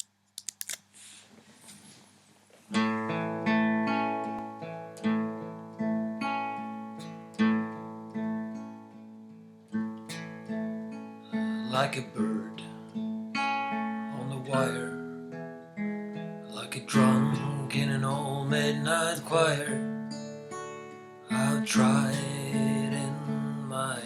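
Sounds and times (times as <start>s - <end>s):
faint hiss: 0.9s - 2.8s
acoustic guitar chords: 2.7s - 24.0s.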